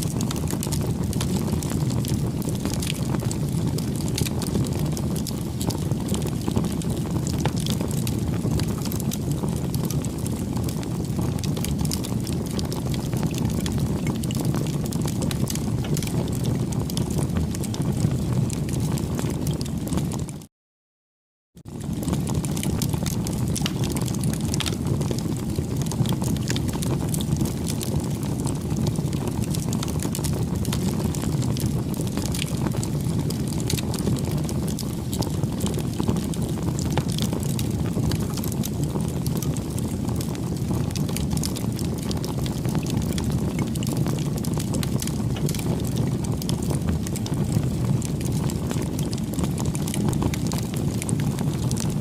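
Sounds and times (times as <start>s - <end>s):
bonfire rumbling: 0.0s - 20.4s, 21.6s - 52.0s
fire crackles and pops: 0.0s - 20.4s, 21.6s - 52.0s.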